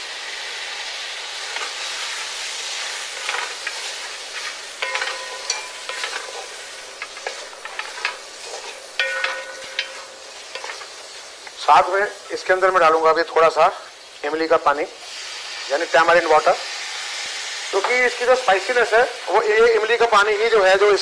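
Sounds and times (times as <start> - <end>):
chicken sizzling in a pan: 0.0 - 21.0
wooden spatula scraping a pan: 1.4 - 11.6
metal pan ringing: 4.3 - 11.4.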